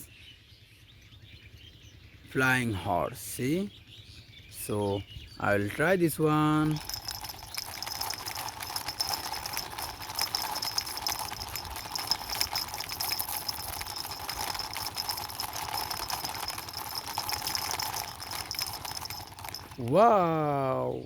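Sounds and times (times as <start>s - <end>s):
plastic toy clicking clatter: 6.6s - 20.0s.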